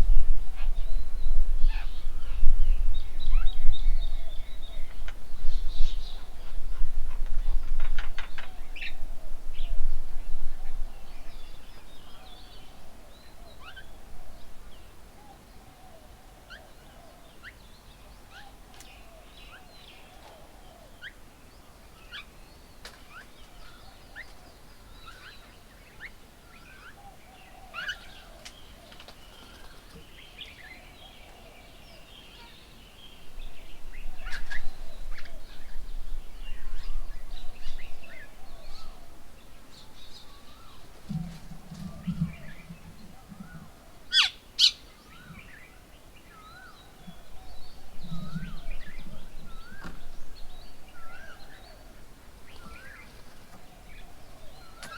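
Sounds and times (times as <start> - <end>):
birds chirping and whistling: 39.8 - 51.8
low wavering bird call: 43.2 - 45.4.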